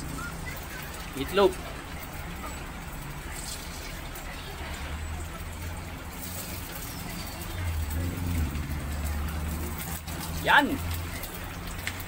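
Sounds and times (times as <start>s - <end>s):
meat sizzling in frying pan: 0.0s - 12.0s.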